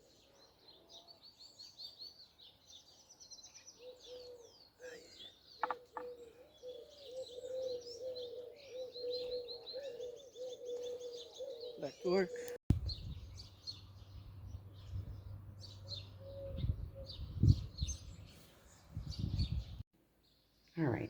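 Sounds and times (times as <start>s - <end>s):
small birds chirping: 0.0s - 21.0s
lower repeating bird call: 3.8s - 12.6s.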